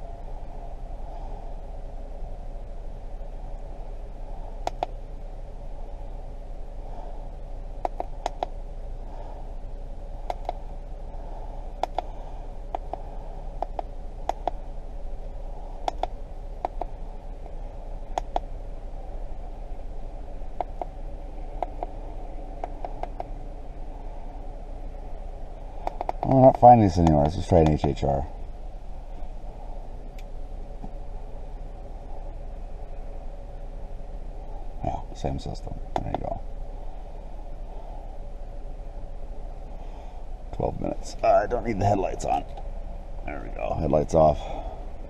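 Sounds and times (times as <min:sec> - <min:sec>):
steady hum: 0:00.0 - 0:45.0
buttons clicking: 0:15.9 - 0:16.9, 0:22.6 - 0:23.3.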